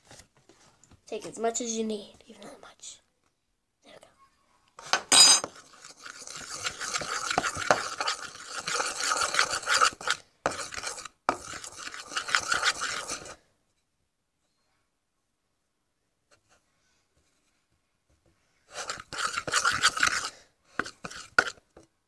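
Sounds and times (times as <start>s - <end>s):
spoon scraping stiff mixture: 4.8s - 13.4s, 18.6s - 21.9s.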